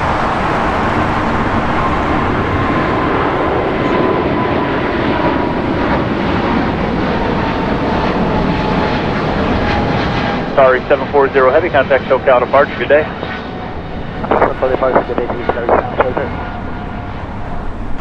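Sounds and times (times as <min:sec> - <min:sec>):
jet engines at takeoff: 0:00.0 - 0:18.0.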